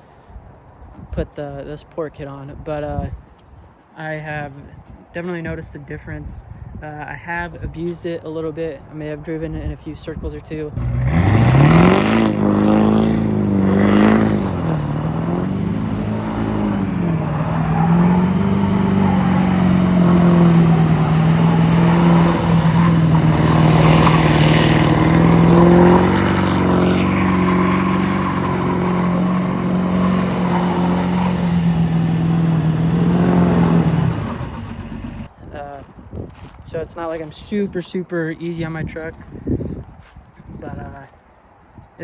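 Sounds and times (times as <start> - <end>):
truck engine revving: 10.8 - 35.3.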